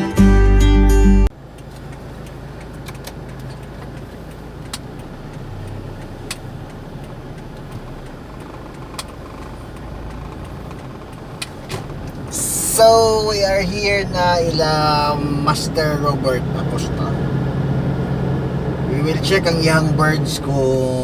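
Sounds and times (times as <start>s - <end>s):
car engine hum: 0.0s - 21.0s
road noise: 1.2s - 21.0s
sharp clicks: 1.5s - 13.6s.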